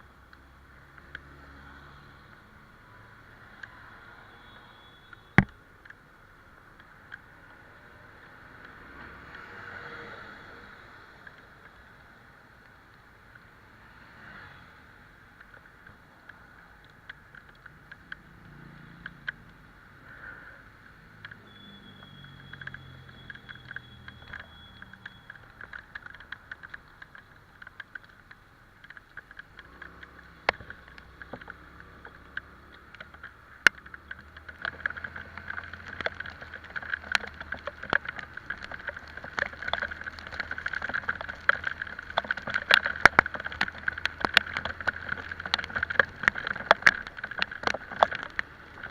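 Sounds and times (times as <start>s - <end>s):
rain on wet road hissing: 0.0s - 48.9s
raindrops ticking on microphone: 0.0s - 48.9s.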